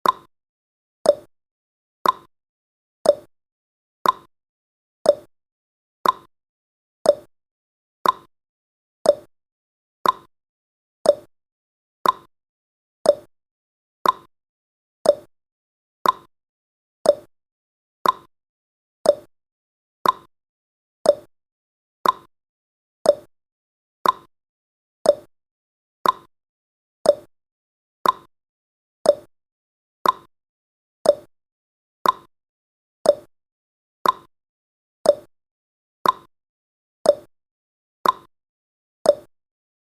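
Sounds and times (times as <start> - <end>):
clock ticking: 2.0 - 2.3, 4.0 - 4.3, 6.0 - 6.3, 8.0 - 8.3, 10.0 - 10.3, 12.0 - 12.3, 14.0 - 14.3, 15.1 - 15.3, 16.0 - 16.3, 18.0 - 18.3, 19.1 - 19.3, 20.0 - 20.3, 21.1 - 21.3, 22.0 - 22.3, 24.0 - 24.3, 26.0 - 26.3, 28.0 - 28.3, 29.1 - 29.3, 30.0 - 30.3, 31.1 - 31.3, 32.0 - 32.3, 33.1 - 33.3, 34.0 - 34.3, 35.1 - 35.3, 36.0 - 36.3, 38.0 - 38.3, 39.1 - 39.3.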